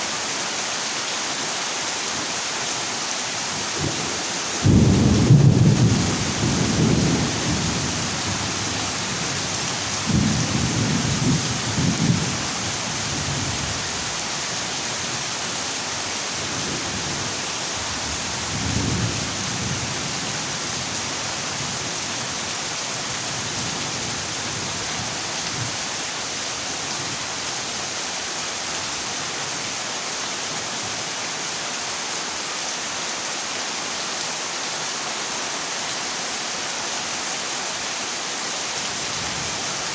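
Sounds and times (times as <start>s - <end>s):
heavy rain on a metal roof: 0.0s - 39.9s
thunder rumbling: 4.6s - 12.4s.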